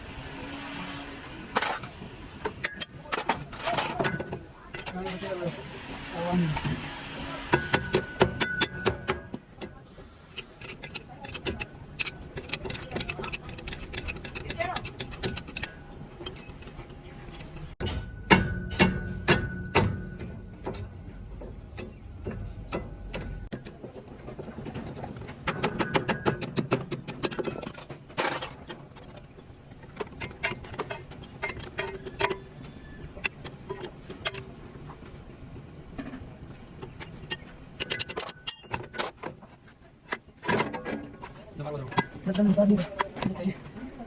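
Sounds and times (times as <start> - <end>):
hand tools clinking on metal: 1.6 - 5.7, 7.5 - 21.0, 25.4 - 35.1, 35.9 - 39.2.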